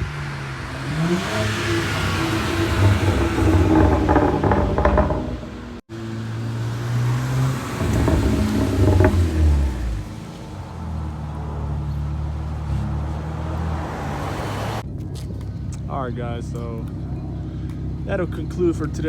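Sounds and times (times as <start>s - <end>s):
car engine revving: 0.0s - 11.6s.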